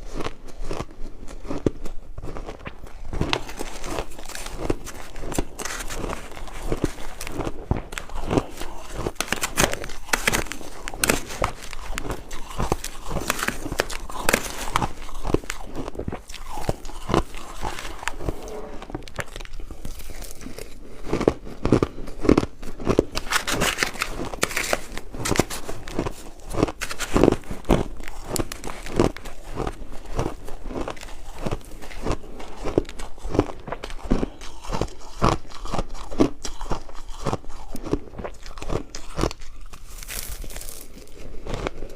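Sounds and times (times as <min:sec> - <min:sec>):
ice crunching while chewed: 0:00.0 - 0:41.9.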